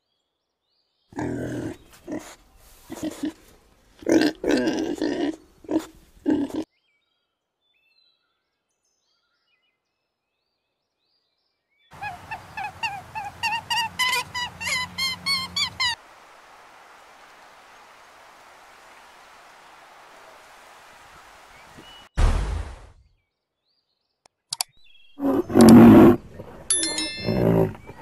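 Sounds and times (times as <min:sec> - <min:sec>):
pig grunting: 0:01.2 - 0:03.4, 0:04.0 - 0:06.7
bird chirping: 0:06.8 - 0:16.0, 0:23.0 - 0:28.0.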